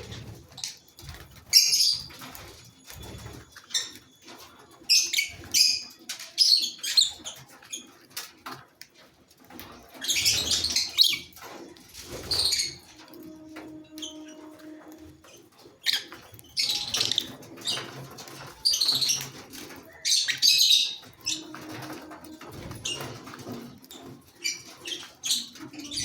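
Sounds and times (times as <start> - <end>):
lovebirds chirping shrilly: 13.9 - 21.9.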